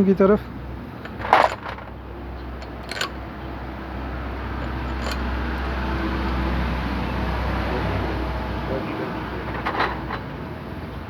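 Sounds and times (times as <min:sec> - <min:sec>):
metal scraping: 0:01.0 - 0:02.0, 0:02.6 - 0:03.2, 0:04.6 - 0:05.4
sharp metal clink: 0:01.0 - 0:02.0, 0:02.6 - 0:03.2, 0:04.6 - 0:05.3.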